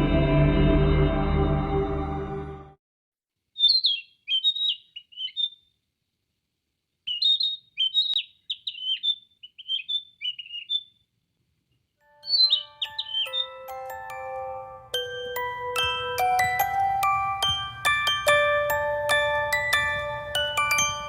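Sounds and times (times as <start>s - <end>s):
bird singing whistled notes: 3.6s - 5.6s, 7.1s - 10.9s, 12.2s - 13.7s.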